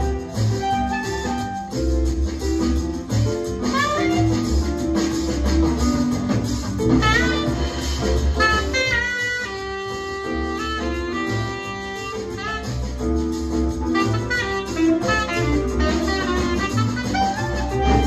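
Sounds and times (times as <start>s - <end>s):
saxophone melody: 0.0s - 1.9s, 3.5s - 5.0s, 6.9s - 18.0s
jazz guitar: 0.0s - 18.0s
walking bass: 0.0s - 18.0s.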